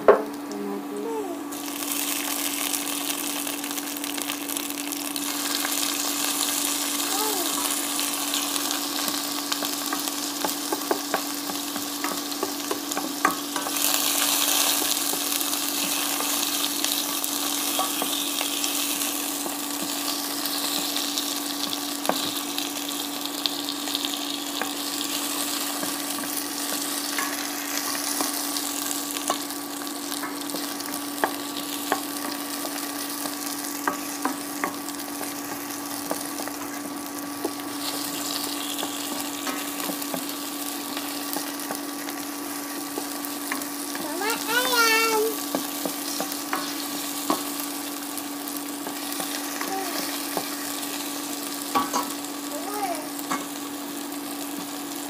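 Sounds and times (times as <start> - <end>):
vegetables sizzling in oil: 0.0 - 55.0.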